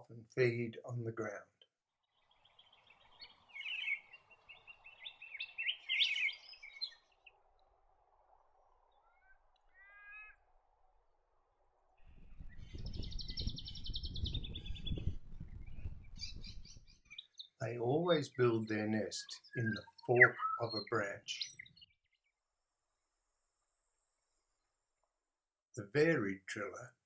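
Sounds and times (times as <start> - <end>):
bird rolling trills: 8.2 - 10.5.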